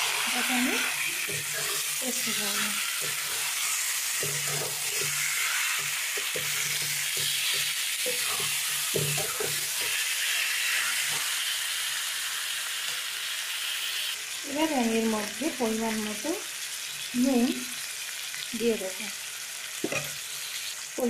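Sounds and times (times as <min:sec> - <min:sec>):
chicken sizzling in hot oil: 0:00.0 - 0:21.0
metal spatula scraping pan: 0:00.1 - 0:11.4.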